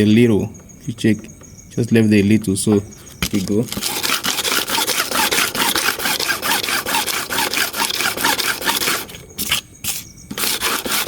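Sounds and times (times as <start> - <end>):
blade rasping on sandpaper: 3.7 - 11.0.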